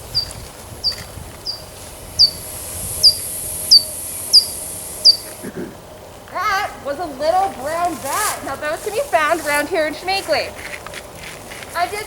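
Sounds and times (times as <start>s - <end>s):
bat chirps through speaker: 0.1s - 5.4s.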